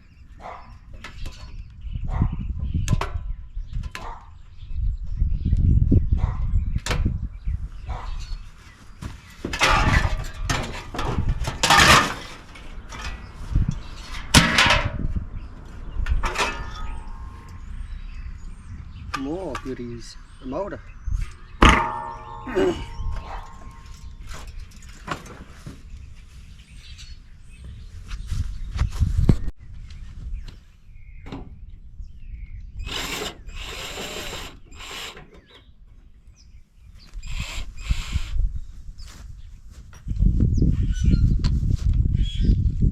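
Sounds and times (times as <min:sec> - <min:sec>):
sheet metal clattering and scraping: 0:09.5 - 0:15.0, 0:16.1 - 0:17.6, 0:21.6 - 0:25.6
power tool bursts on metal: 0:32.8 - 0:35.5.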